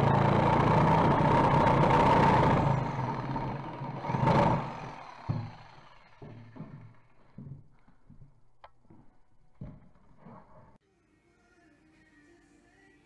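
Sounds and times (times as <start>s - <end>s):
power saw whining: 0.0s - 10.8s.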